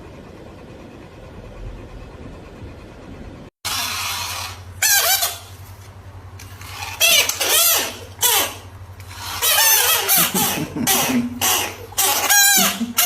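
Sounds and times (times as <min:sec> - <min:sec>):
animal high-pitched calls: 0:03.7 - 0:05.6, 0:06.6 - 0:13.0.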